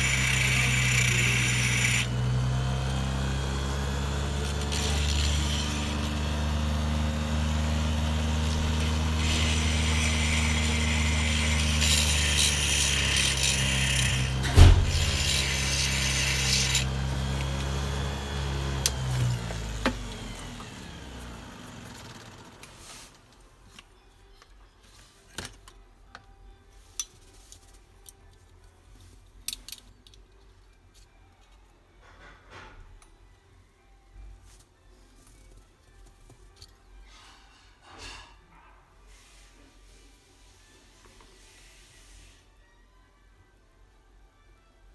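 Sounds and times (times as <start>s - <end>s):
harsh grinding noise: 0.0s - 22.8s
power tool motor running: 0.0s - 22.9s
sharp knock: 14.4s - 15.5s.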